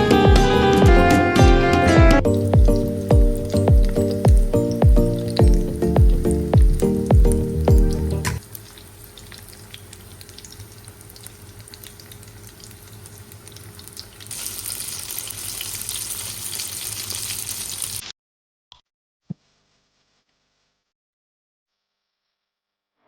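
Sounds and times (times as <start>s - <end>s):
food sizzling in a pan: 2.3s - 18.0s.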